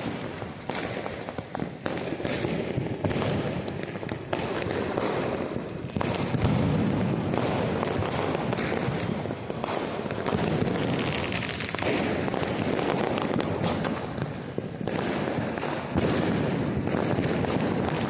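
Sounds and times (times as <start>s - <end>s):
firecrackers crackling: 0.0s - 18.0s
loud firecracker bangs: 0.0s - 18.0s.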